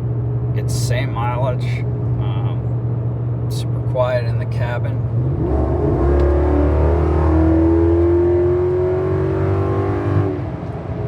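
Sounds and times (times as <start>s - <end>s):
engine accelerating hard: 5.1s - 10.5s.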